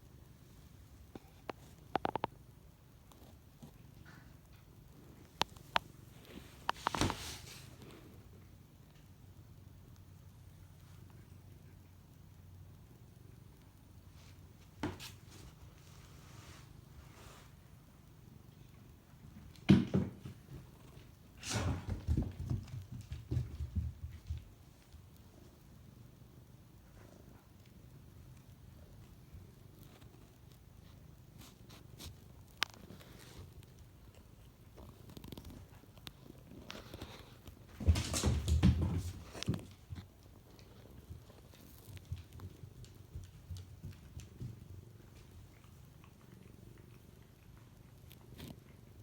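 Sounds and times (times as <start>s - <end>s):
cat purring: 20.4s - 37.7s, 39.2s - 49.0s.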